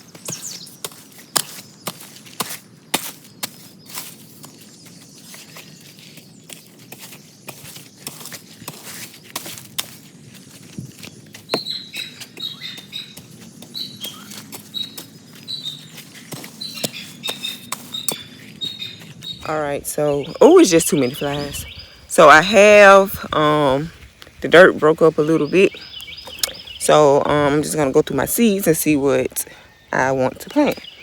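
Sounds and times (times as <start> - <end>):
bird chirping: 0.0 - 2.1, 10.8 - 31.0
garden tool chopping soil: 0.1 - 4.6, 6.5 - 18.8.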